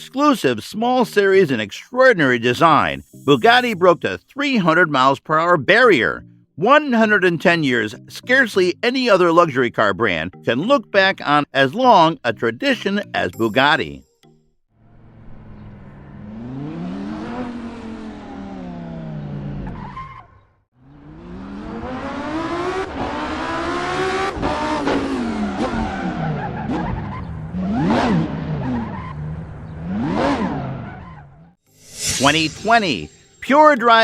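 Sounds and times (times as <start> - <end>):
sports car engine revving: 15.0 - 19.8, 20.8 - 31.1.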